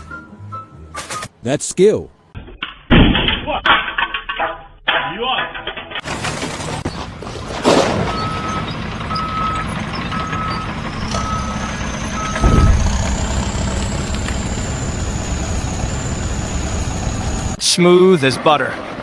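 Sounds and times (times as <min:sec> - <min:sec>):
vehicle reversing alarm beeping: 0:08.0 - 0:17.6
engine humming: 0:08.1 - 0:17.6
low thud: 0:12.1 - 0:16.4
high thin whine: 0:12.4 - 0:17.6.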